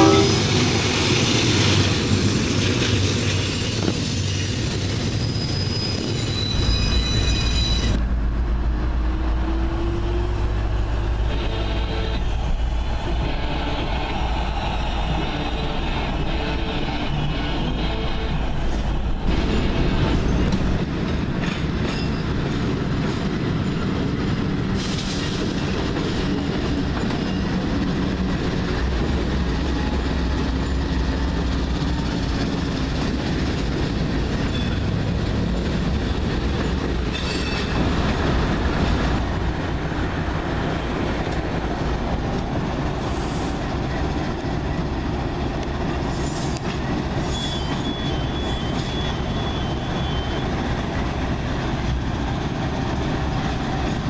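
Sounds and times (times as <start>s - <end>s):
diesel locomotive engine rumble: 0.0s - 54.0s
wheel squeal: 2.8s - 8.0s, 47.2s - 50.5s.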